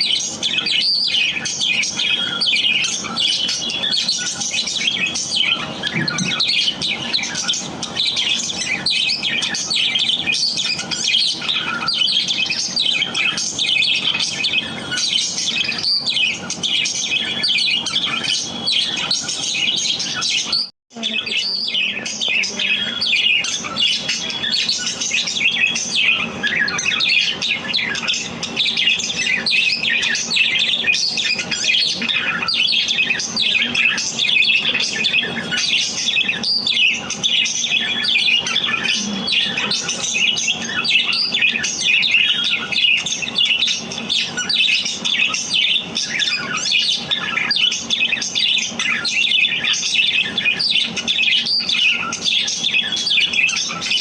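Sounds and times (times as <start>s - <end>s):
budgerigars chirping and chattering: 0.0s - 54.0s.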